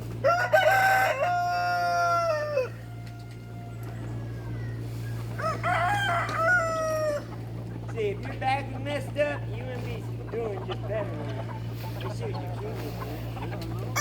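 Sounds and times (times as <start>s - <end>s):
rooster crowing: 0.2s - 7.4s.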